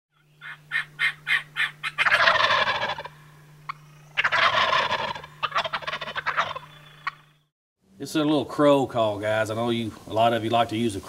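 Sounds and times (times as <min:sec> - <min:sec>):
long rattling crow calls: 0:00.4 - 0:07.2.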